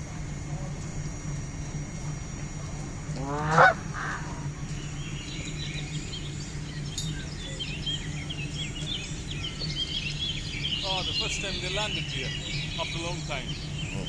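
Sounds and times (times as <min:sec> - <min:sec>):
goose honking: 0:03.2 - 0:04.2, 0:09.0 - 0:14.0
small birds chirping: 0:04.7 - 0:14.0.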